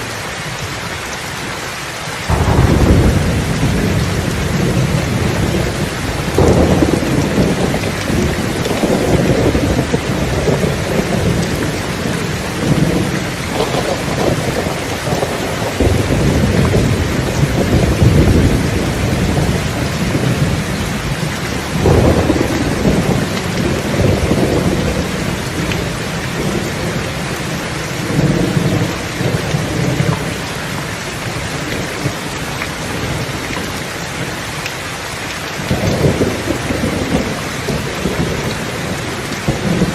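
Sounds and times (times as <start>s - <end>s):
heavy rain hissing: 0.0s - 39.9s
thunder rolling: 2.3s - 30.0s.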